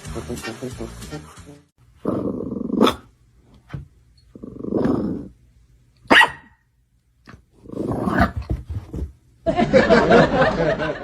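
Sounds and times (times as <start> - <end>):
dog growling: 2.0 - 3.1, 4.3 - 5.4, 7.6 - 8.4
dog barking sharply: 6.1 - 6.6.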